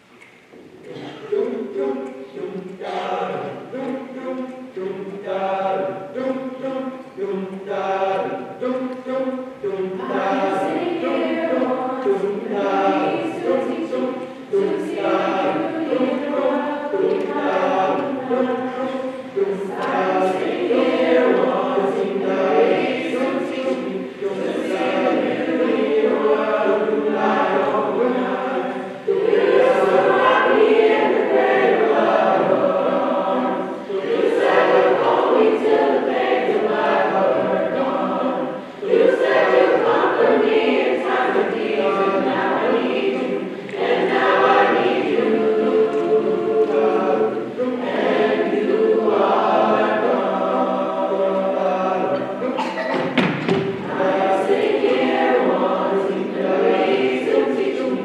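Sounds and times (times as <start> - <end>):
choir singing a cappella: 0.0 - 58.0.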